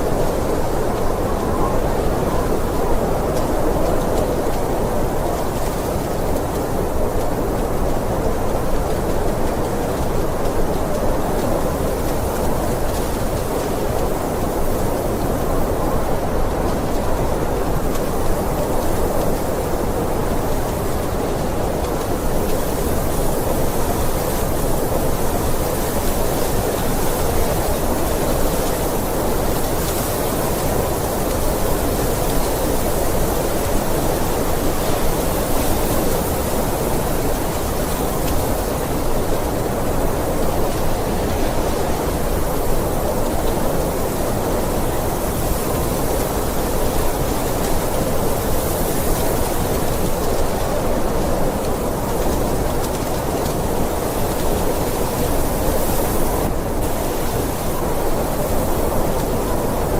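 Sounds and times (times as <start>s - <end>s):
blizzard wind rushing: 0.0s - 59.9s.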